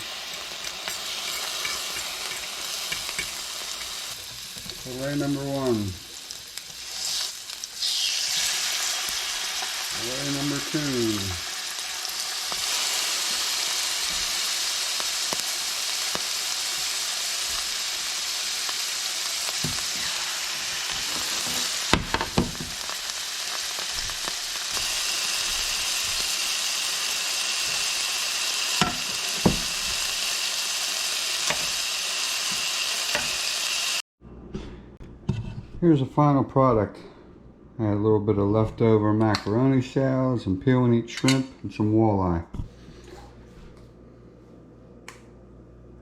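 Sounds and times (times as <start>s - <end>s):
fish sizzling in a pan: 0.0s - 34.0s.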